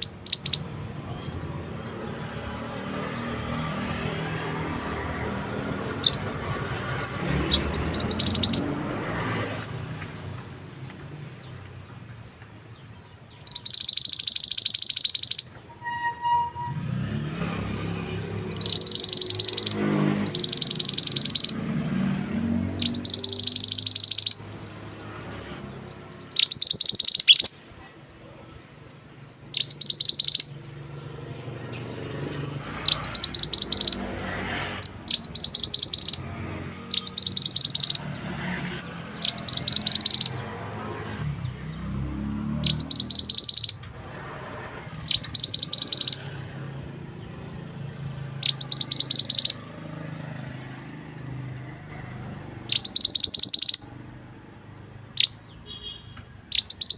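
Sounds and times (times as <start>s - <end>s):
bird singing rolled high trills: 0.0s - 9.8s, 13.0s - 27.8s, 28.8s - 38.3s, 38.9s - 54.1s, 55.0s - 56.9s.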